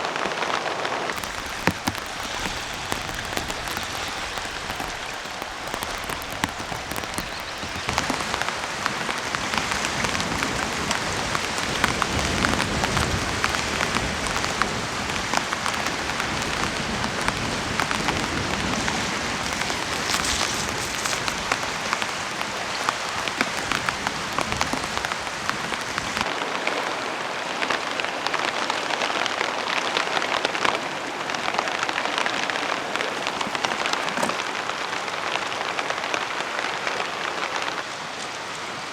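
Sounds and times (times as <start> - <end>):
rain falling: 0.0 - 38.9
raindrops ticking: 1.2 - 26.3.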